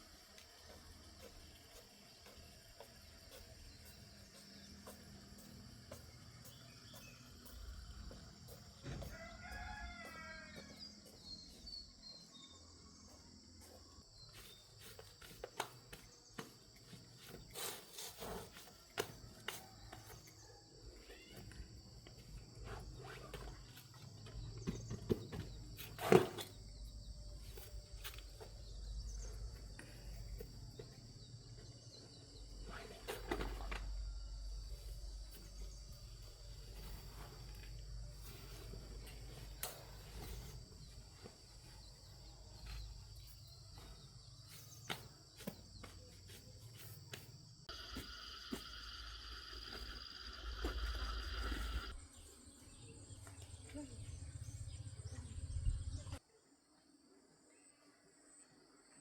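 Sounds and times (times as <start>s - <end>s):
rooster crowing: 8.9s - 11.2s.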